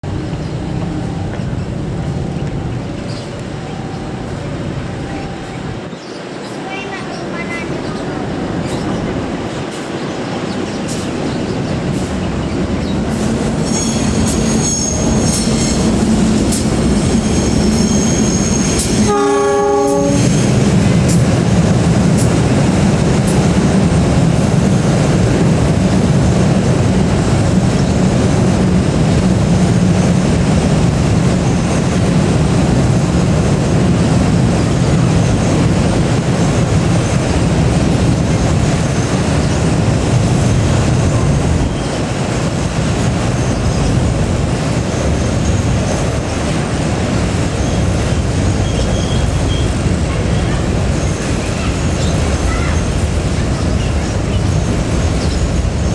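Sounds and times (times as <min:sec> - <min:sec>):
train rolling rumble: 0:00.0 - 0:55.9
wheels squealing: 0:12.4 - 0:20.6
train horn: 0:17.7 - 0:20.6.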